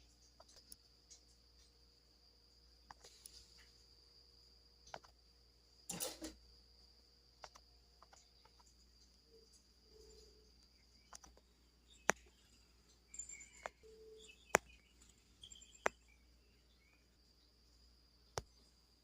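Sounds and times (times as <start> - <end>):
high insect trill: 0.0 - 19.0
birds chirping: 8.0 - 18.8
sharp clicks: 11.1 - 11.4.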